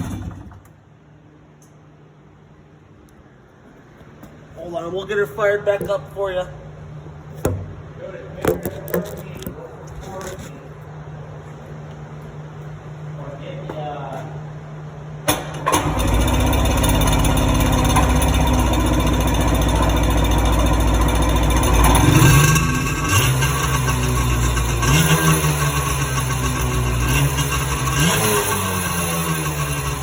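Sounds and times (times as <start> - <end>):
two-stroke engine running: 0.0 - 0.6, 15.6 - 30.0
click: 1.6 - 1.8.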